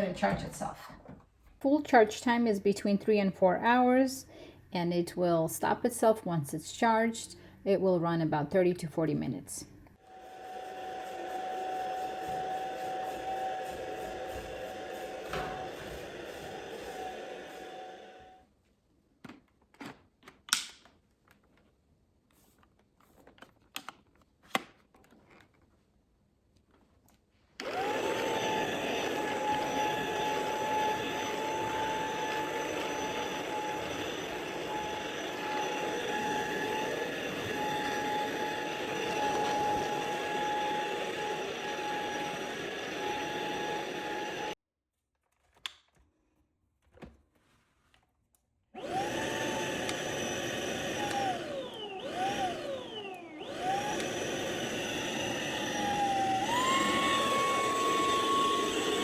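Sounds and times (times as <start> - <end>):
vacuum cleaner motor whine: 10.0 - 18.4, 27.6 - 44.6, 48.8 - 59.0.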